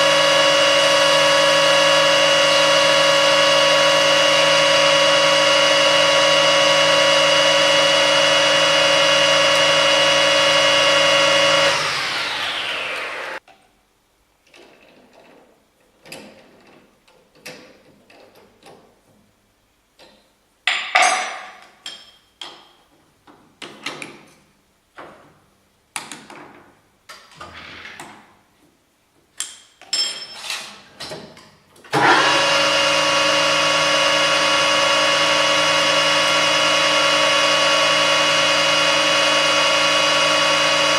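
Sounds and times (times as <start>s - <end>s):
lathe motor whine: 0.0s - 13.4s, 32.0s - 40.9s.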